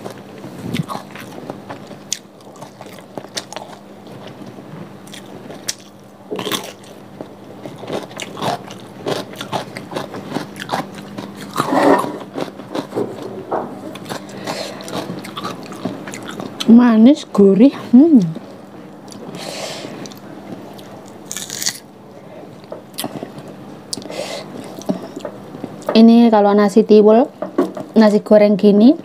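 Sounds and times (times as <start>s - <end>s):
wet chewing: 0.7s - 13.3s, 13.9s - 16.7s
crunchy bites: 7.7s - 13.0s, 20.8s - 21.9s.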